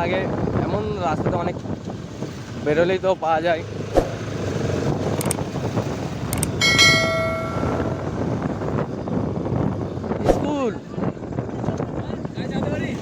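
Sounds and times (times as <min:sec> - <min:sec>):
wind rushing: 0:03.8 - 0:08.8, 0:10.2 - 0:10.7.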